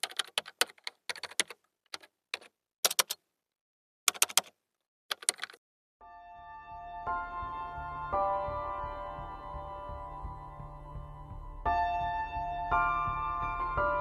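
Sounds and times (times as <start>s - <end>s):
typing key clicks: 0.0s - 3.2s, 4.1s - 4.5s, 5.1s - 5.6s
soft music with sustained notes: 6.0s - 14.0s.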